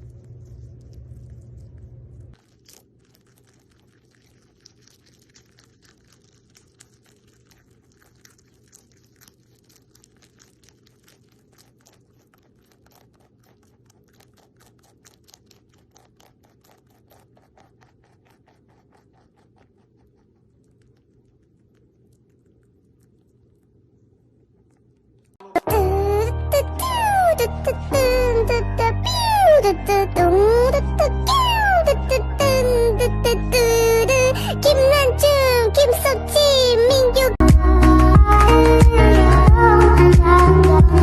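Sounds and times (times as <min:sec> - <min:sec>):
rabbit chewing: 0:00.0 - 0:25.9
low steady hum: 0:00.0 - 0:41.0.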